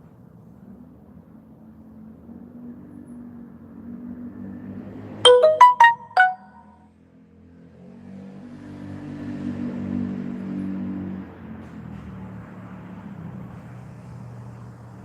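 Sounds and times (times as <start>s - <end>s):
electronic notification chime: 5.3s - 6.7s.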